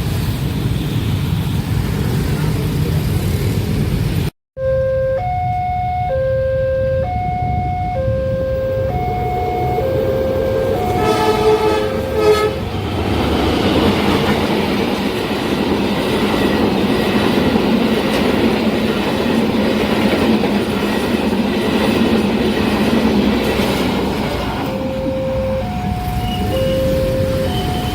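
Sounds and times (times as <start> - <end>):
level crossing two-tone alarm: 4.6 - 12.5, 24.5 - 27.9
train horn: 7.0 - 12.8
train wheels rumbling on rails: 9.0 - 27.9.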